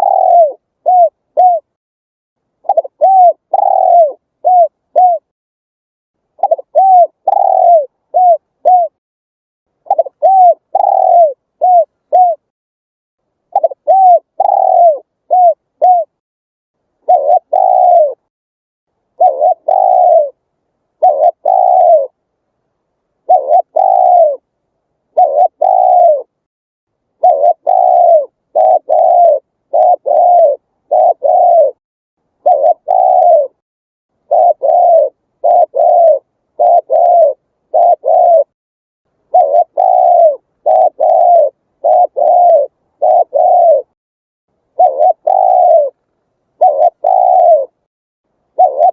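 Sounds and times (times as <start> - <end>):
dove cooing: 0.0 - 1.8, 2.6 - 5.3, 6.4 - 9.0, 9.8 - 12.5, 13.5 - 16.2, 17.0 - 18.3, 19.2 - 20.4, 21.0 - 22.2, 23.2 - 24.5, 25.1 - 26.4, 27.2 - 31.8, 32.4 - 33.6, 34.2 - 38.6, 39.3 - 44.0, 44.7 - 47.9, 48.6 - 48.9.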